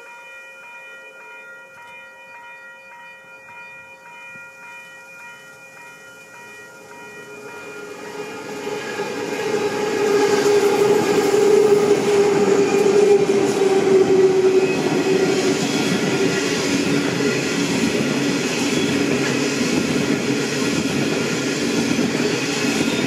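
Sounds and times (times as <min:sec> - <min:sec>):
train rumbling past: 0:06.3 - 0:23.0.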